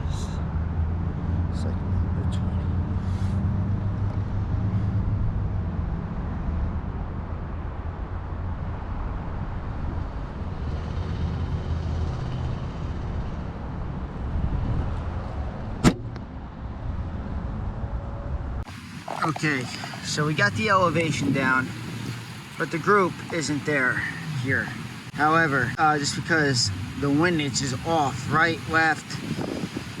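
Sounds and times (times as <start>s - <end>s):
low rumble of road traffic: 0.0s - 30.0s
bow shot crack: 15.8s - 16.2s.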